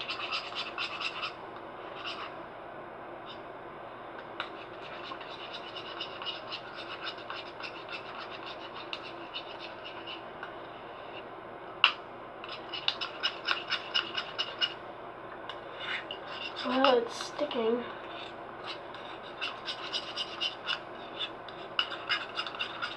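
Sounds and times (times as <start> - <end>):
utensil scraping slime in bowl: 0.0 - 2.3, 4.4 - 10.2, 12.4 - 14.8, 15.8 - 22.9.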